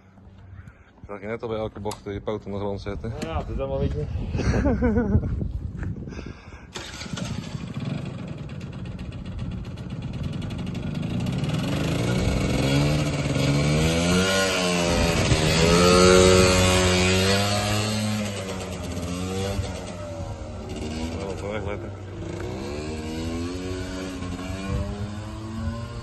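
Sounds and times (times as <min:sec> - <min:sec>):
scooter engine revving: 0:06.7 - 0:26.0.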